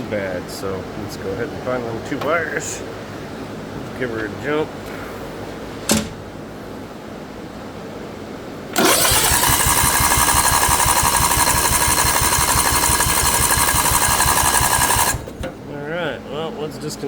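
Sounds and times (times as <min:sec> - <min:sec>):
electric starter cranking engine: 0:08.7 - 0:15.5.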